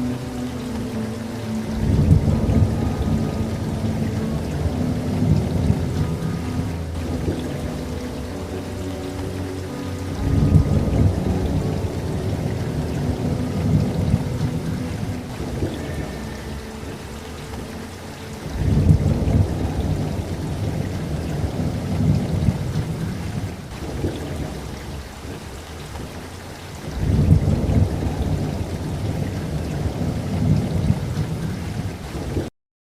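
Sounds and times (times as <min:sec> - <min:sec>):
steady rain: 0:00.0 - 0:32.5
thunder rolling: 0:10.1 - 0:17.0, 0:26.8 - 0:32.4.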